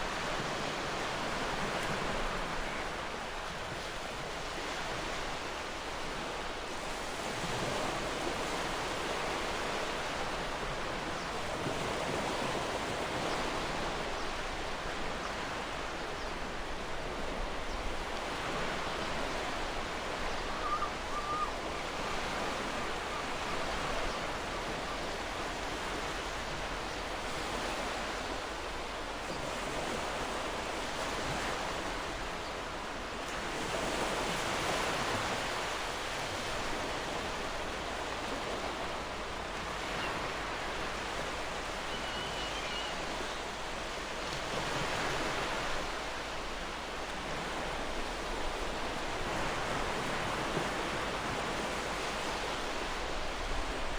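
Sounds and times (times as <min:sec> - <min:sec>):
faint bird chirp: 0:39.9 - 0:43.6.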